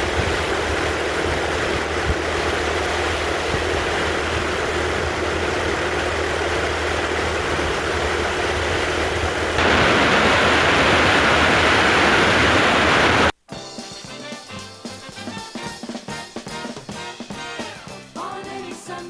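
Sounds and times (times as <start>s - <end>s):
motorcycle engine running: 0.0s - 13.3s
wind rush over microphone: 0.0s - 13.3s.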